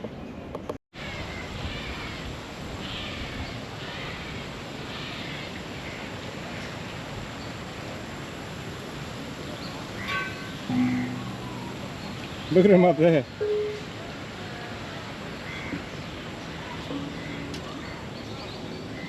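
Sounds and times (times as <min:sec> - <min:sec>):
steady background hiss: 0:01.0 - 0:19.0
birds calling: 0:09.4 - 0:19.0.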